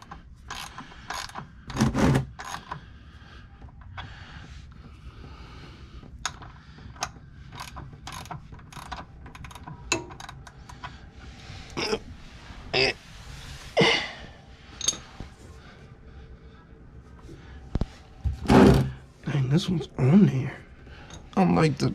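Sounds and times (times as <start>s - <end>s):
ratchet clicking: 6.2s - 10.6s.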